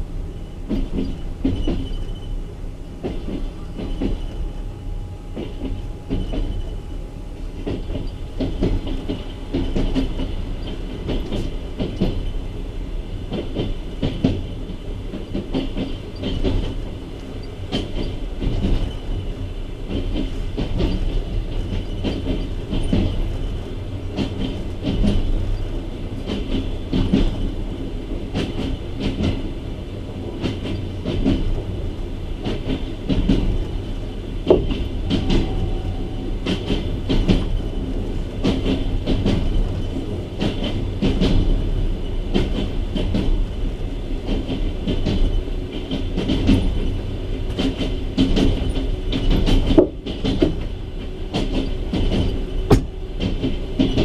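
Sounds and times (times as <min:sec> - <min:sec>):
train low rumble: 0:00.0 - 0:54.0
train wheels clattering over joints: 0:00.0 - 0:54.0.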